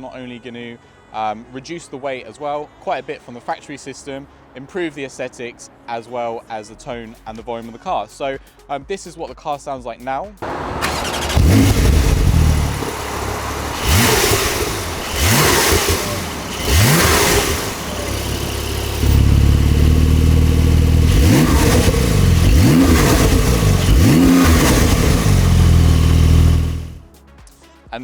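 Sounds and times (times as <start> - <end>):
sports car engine idling and revving: 10.4 - 27.1.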